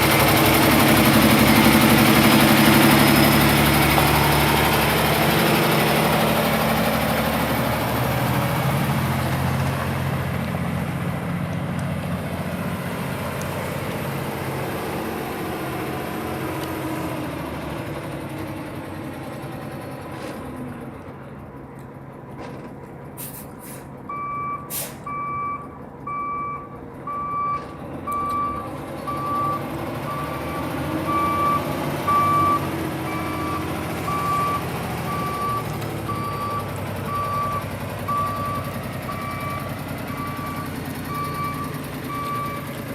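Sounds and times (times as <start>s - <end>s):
truck diesel engine running: 0.0s - 42.9s
short sharp hissing: 23.2s - 23.9s, 24.7s - 25.0s
backup alarm beeping: 24.1s - 42.7s.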